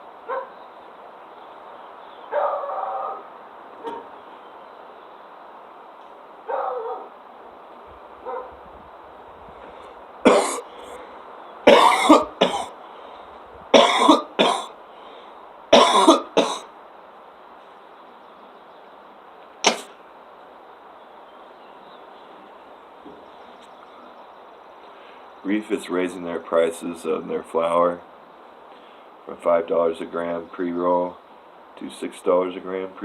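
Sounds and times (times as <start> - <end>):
man coughing harshly: 10.3 - 10.7, 11.7 - 12.8, 13.7 - 14.7, 15.7 - 16.7, 19.7 - 19.9.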